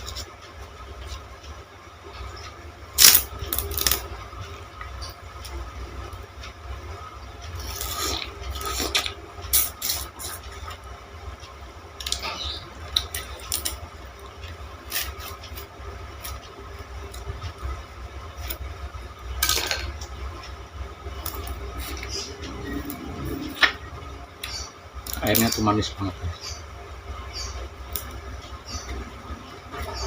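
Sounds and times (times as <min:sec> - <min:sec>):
steady low hum: 0:00.0 - 0:30.0
sugar cane crunching: 0:03.0 - 0:04.1, 0:07.6 - 0:10.4.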